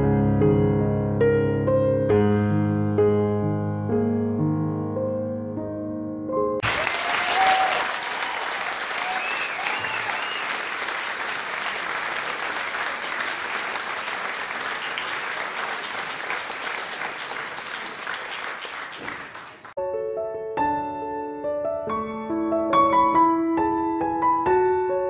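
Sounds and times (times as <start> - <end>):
crowd applause: 6.6 - 19.8.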